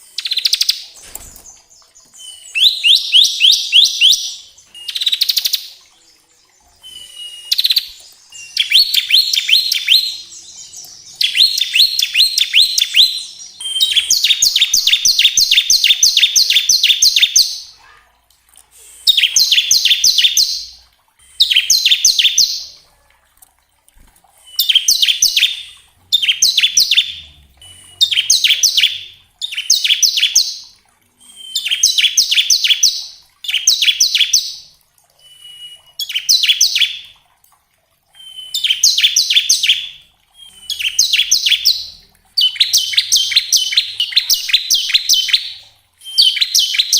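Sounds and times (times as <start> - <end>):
bird singing rapid trill: 2.2 - 5.6, 6.6 - 17.8, 24.4 - 30.6, 38.2 - 46.9.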